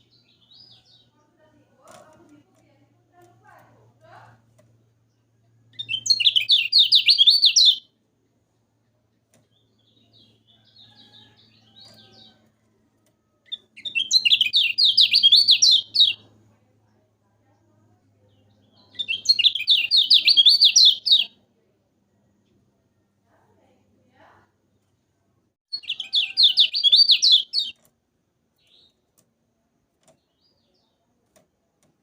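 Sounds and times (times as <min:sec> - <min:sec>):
soft bird twittering: 0:05.1 - 0:07.9, 0:13.5 - 0:16.3, 0:18.3 - 0:21.3, 0:25.7 - 0:27.8.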